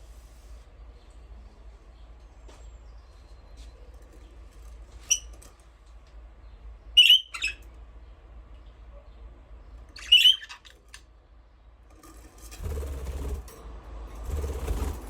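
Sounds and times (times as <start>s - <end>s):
budgerigar chirping calls: 7.0s - 7.6s, 9.9s - 10.8s.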